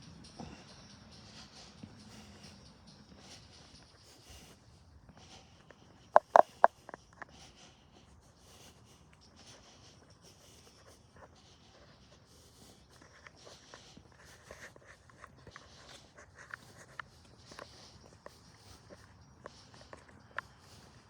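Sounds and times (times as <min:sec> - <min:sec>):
footsteps crunching on trail: 0:05.6 - 0:07.4.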